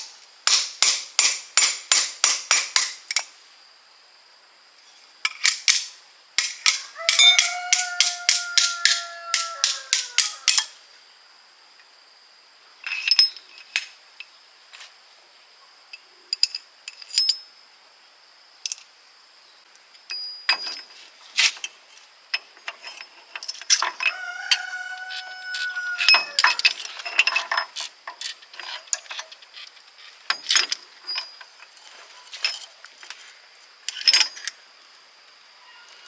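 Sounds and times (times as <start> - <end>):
power wrench hammering: 0.0 - 3.3, 5.3 - 10.7
metal tools clinking: 5.2 - 10.8, 12.8 - 14.0, 16.3 - 17.5, 20.1 - 32.8, 33.9 - 34.6.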